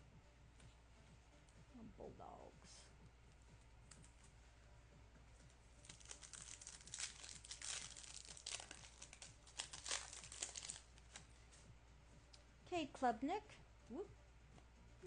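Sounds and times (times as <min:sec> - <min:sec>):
foil wrapper crinkling and tearing: 0:05.8 - 0:11.3.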